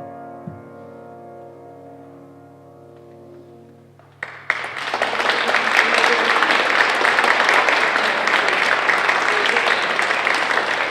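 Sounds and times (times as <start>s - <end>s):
piano chord: 0.0s - 4.6s
audience applause: 4.1s - 10.9s.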